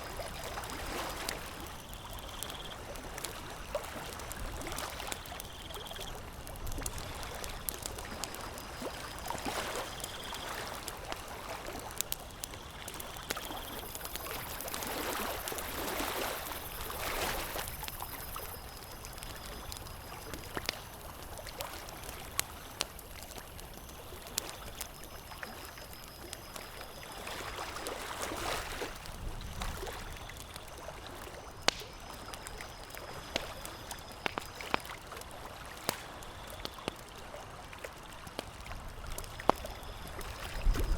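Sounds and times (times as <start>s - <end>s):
campfire crackling and popping: 0.0s - 40.9s.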